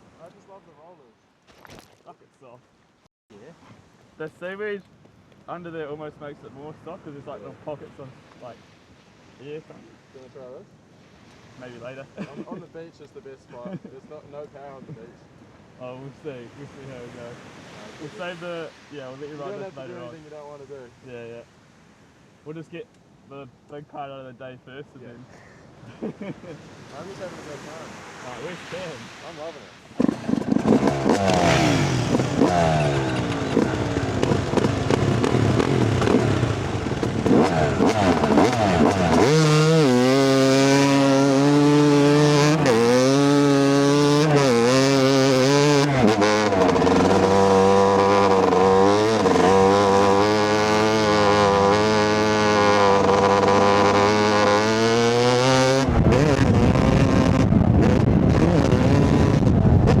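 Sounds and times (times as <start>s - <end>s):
dirt bike engine revving: 30.0s - 60.0s
other dirt bike engines: 30.0s - 60.0s
wind on microphone: 55.8s - 60.0s.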